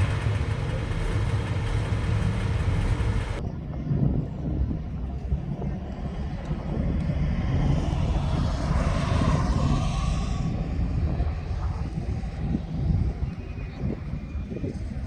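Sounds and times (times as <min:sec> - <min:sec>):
car engine running hard: 0:00.0 - 0:03.4.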